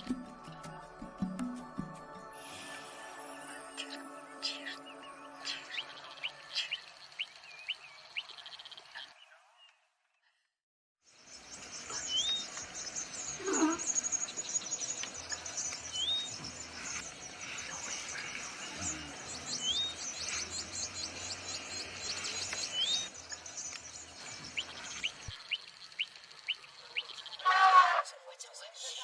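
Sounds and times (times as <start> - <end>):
high-pitched bird chirping chorus: 3.8 - 9.4, 11.6 - 27.8.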